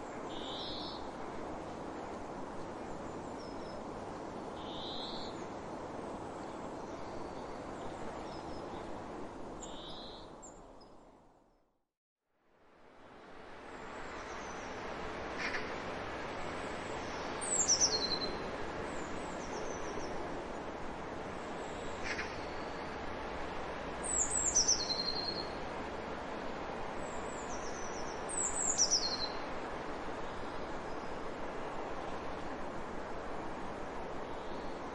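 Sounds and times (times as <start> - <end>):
steady background hiss: 0.0 - 11.4, 12.4 - 34.9
songbird singing high phrases: 17.4 - 18.4, 24.1 - 25.5, 27.5 - 29.4.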